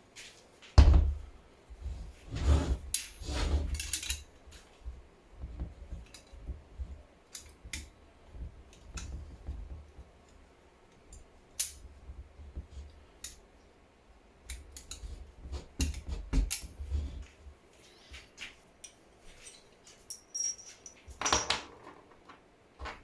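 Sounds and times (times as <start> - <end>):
tools clicking and knocking: 18.8 - 23.0.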